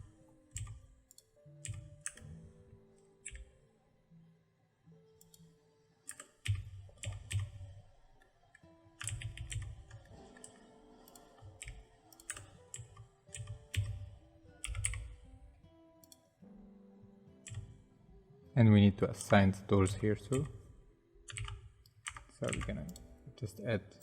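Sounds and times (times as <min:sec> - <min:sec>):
keyboard and mouse clicking: 0:00.0 - 0:02.4, 0:03.2 - 0:03.6, 0:06.1 - 0:07.8, 0:09.0 - 0:15.2, 0:16.0 - 0:16.3, 0:17.4 - 0:17.8, 0:19.1 - 0:20.7, 0:21.3 - 0:23.2
faint steady background tones: 0:00.0 - 0:24.0.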